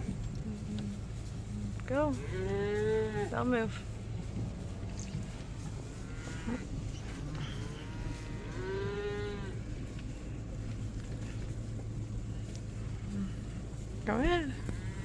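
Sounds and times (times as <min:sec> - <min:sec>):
truck engine humming: 0:00.0 - 0:15.0
cattle mooing: 0:02.0 - 0:03.5, 0:06.0 - 0:09.6.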